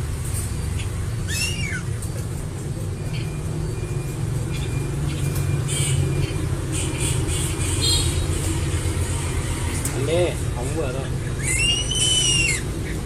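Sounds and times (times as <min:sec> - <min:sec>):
high bird chirps: 0:00.5 - 0:02.2, 0:03.0 - 0:08.4, 0:11.2 - 0:13.0.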